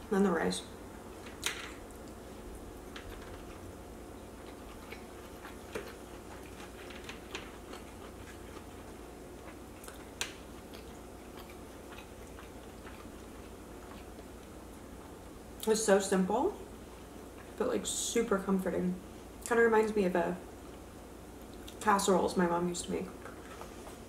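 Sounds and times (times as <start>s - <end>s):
person chewing: 1.8s - 15.1s.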